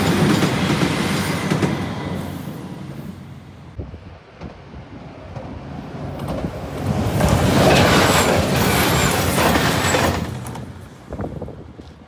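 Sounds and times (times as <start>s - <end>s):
diesel train passing: 0.0s - 12.0s
wheel-on-rail noise: 5.3s - 12.0s.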